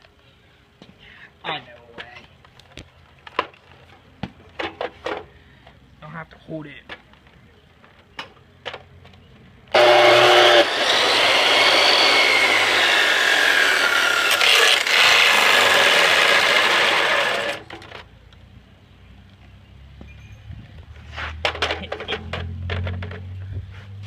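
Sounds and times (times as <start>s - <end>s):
chop saw cutting plastic: 9.7s - 17.7s.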